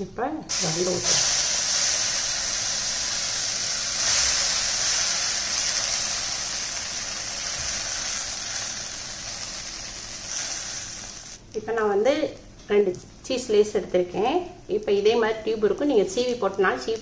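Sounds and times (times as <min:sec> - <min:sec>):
egg batter sizzling in pan: 0:00.5 - 0:11.4.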